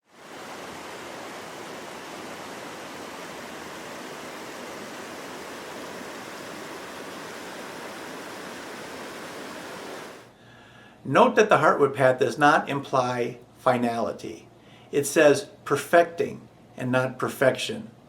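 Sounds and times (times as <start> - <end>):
stream water rushing: 0.0 - 10.3.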